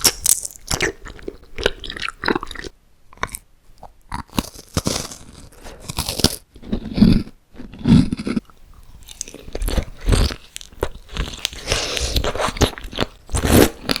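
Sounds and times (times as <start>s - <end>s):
person crunching crisp food: 0.0s - 14.0s.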